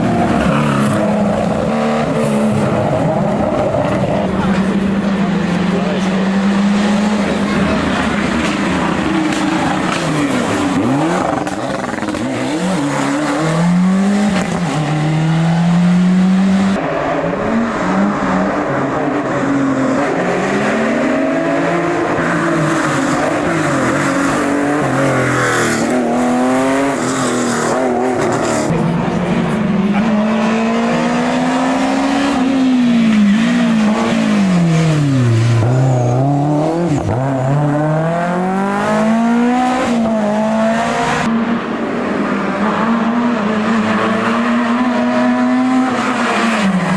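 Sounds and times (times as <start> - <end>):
rally car engine revving: 0.0 - 46.9.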